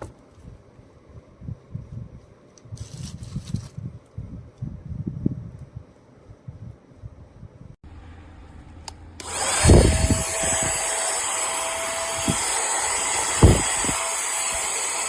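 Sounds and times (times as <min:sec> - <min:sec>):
handheld vacuum cleaner running: 0:09.2 - 0:15.0.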